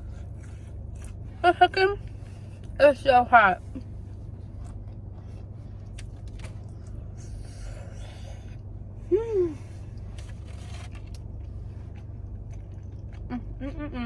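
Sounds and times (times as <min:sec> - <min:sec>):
low steady hum: 0:00.0 - 0:14.0
person eating: 0:04.2 - 0:13.6
person humming mmm: 0:09.1 - 0:09.7, 0:13.3 - 0:14.0.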